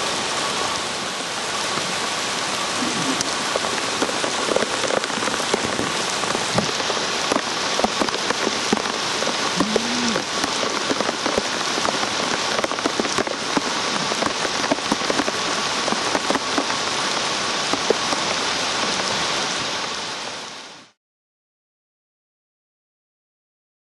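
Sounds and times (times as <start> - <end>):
steady rain falling: 0.0 - 21.0
raindrops tapping: 0.8 - 19.1.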